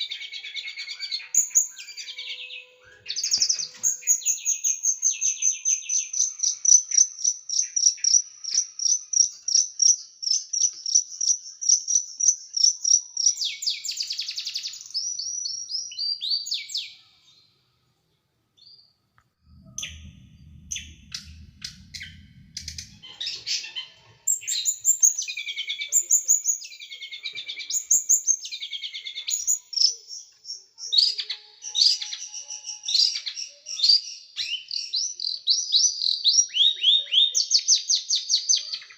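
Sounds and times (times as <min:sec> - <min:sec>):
songbird singing sharp notes: 0:00.0 - 0:17.1, 0:18.6 - 0:37.3
low rumble: 0:19.2 - 0:24.8.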